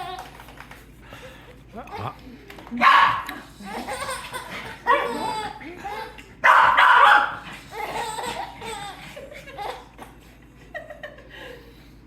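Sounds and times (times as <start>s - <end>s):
dog barking: 2.8s - 3.3s, 6.4s - 7.4s.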